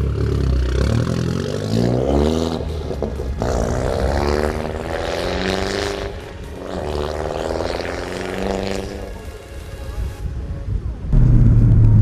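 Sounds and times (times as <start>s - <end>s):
car engine revving: 0.0s - 9.4s, 11.1s - 12.0s.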